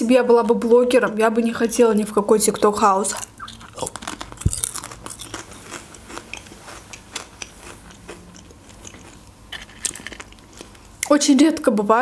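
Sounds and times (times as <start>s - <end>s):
potato chip crunching: 2.4s - 11.2s.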